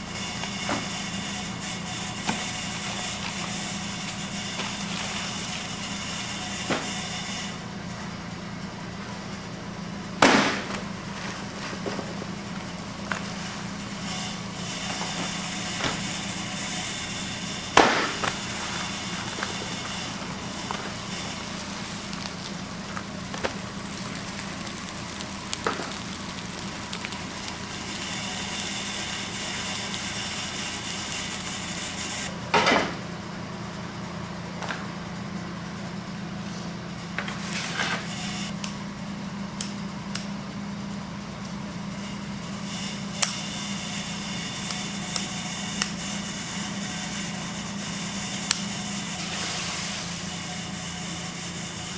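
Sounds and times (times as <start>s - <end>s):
fire crackling: 0.0s - 32.3s
roasting machine humming: 0.0s - 51.9s
loud sharp knocks: 10.2s - 10.9s, 17.8s - 18.4s.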